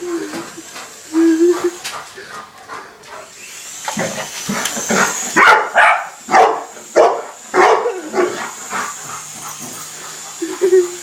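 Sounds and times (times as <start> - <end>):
dog barking rapidly: 5.4 - 8.3.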